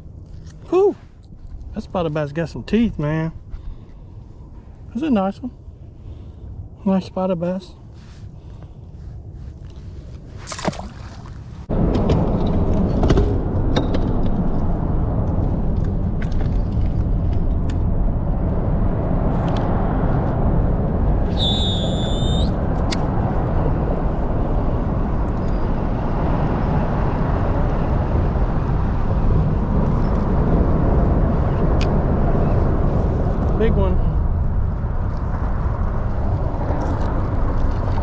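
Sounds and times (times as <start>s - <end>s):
wind noise on microphone: 7.8s - 38.0s.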